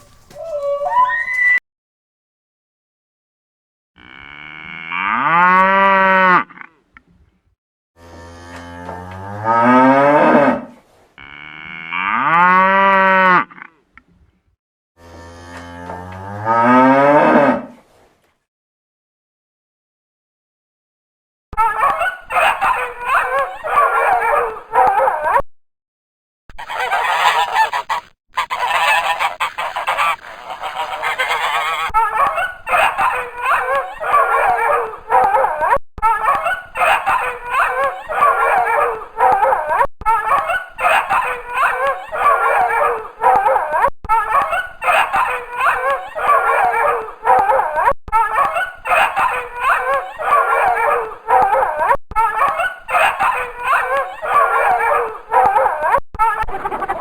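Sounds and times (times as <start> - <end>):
geese honking: 26.6 - 34.3.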